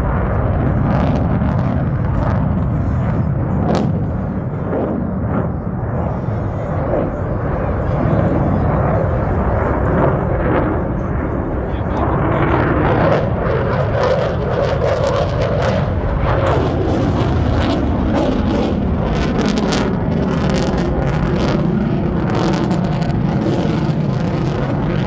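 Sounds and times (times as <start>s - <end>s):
jet engine noise with crackle: 0.0s - 25.0s.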